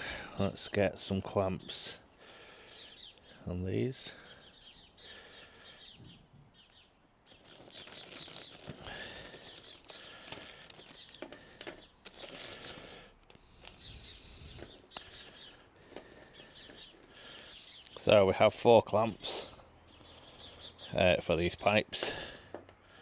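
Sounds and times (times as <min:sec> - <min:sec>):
faint bird chirps: 0:02.5 - 0:18.3, 0:19.1 - 0:21.2
metal parts clicking and knocking: 0:07.4 - 0:13.0.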